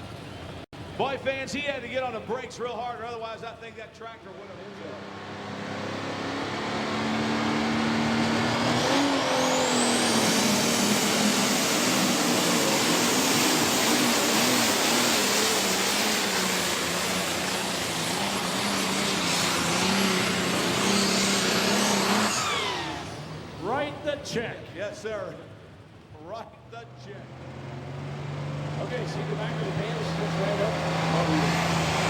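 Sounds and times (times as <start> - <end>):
tractor diesel engine at full power: 4.2 - 24.5, 25.6 - 32.0
turbocharger whistle: 5.5 - 23.3.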